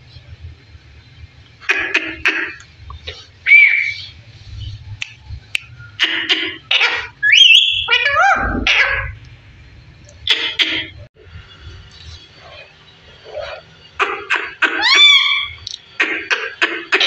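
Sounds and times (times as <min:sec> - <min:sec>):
parrot whistling: 0:03.4 - 0:04.1, 0:05.7 - 0:09.1, 0:14.2 - 0:15.6
parrot harsh calls: 0:03.4 - 0:04.2, 0:06.0 - 0:09.2, 0:13.2 - 0:17.0.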